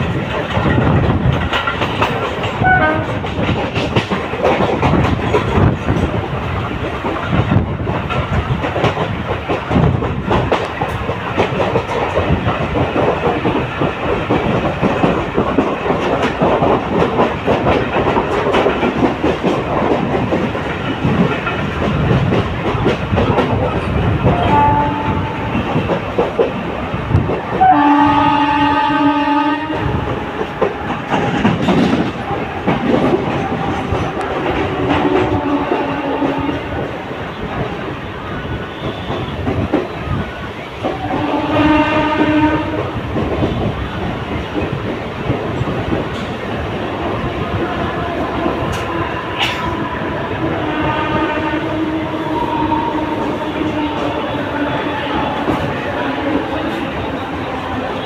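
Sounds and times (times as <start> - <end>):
train horn: 2.6 - 3.3, 24.3 - 25.7, 27.6 - 30.1, 34.6 - 36.8, 38.5 - 39.6, 40.9 - 43.6, 48.0 - 58.0.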